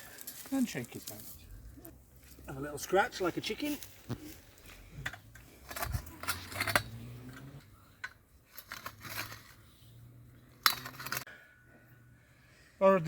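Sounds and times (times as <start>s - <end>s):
auger scraping through soil and stones: 2.7s - 7.8s.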